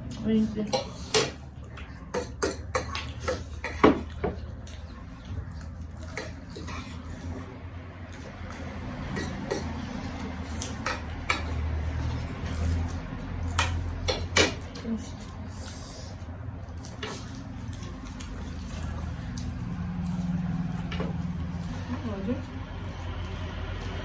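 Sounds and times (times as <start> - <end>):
cutlery tapping on dishes: 2.1 - 4.4, 9.1 - 9.8, 10.5 - 11.6, 13.5 - 14.8.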